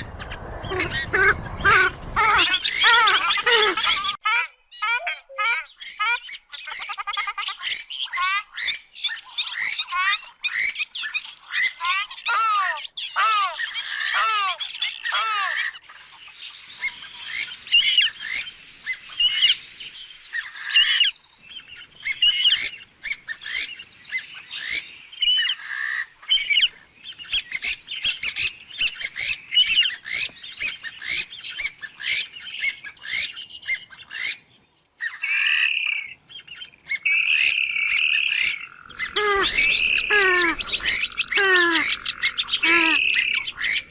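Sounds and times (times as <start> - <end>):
bird squawking and cackling: 0.0 - 36.1, 36.8 - 43.9
high downward-slurred bird notes: 38.4 - 43.9.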